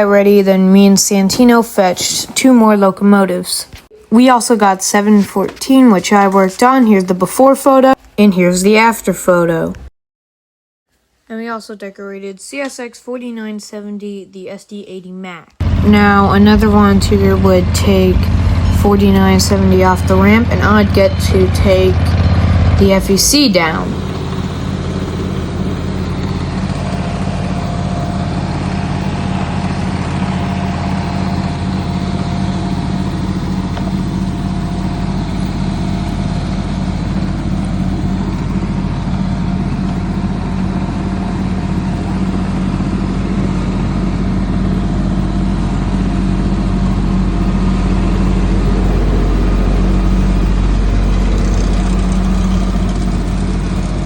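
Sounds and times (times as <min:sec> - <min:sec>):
model locomotive engine drone: 0:15.6 - 0:54.0.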